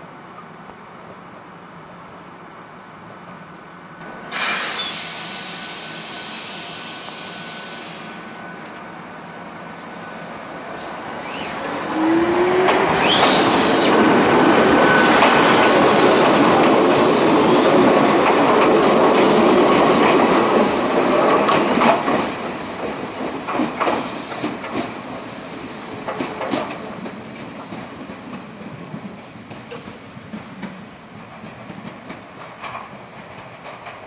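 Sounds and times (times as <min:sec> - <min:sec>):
electric train whine: 0:01.3 - 0:31.8
train wheels rumbling on rail: 0:03.0 - 0:34.0
wheels clacking over rail joints: 0:11.2 - 0:34.0.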